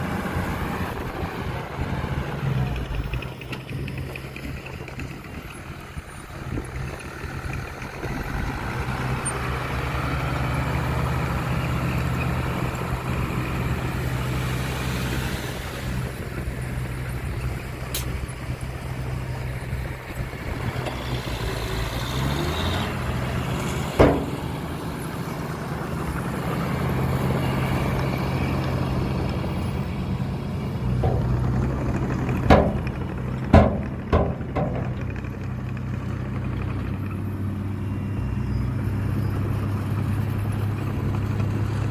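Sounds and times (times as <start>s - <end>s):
heavy diesel engine running: 0.0s - 41.9s
sharp metal clanks: 24.0s - 24.7s, 31.0s - 35.2s.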